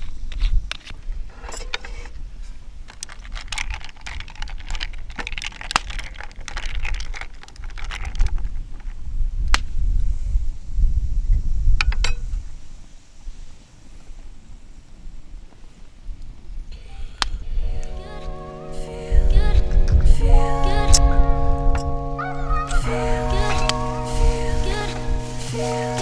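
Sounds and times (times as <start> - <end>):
objects rustling and clattering: 0.0 - 9.0, 21.8 - 26.0
wind rumble on microphone: 7.9 - 18.2, 19.0 - 26.0.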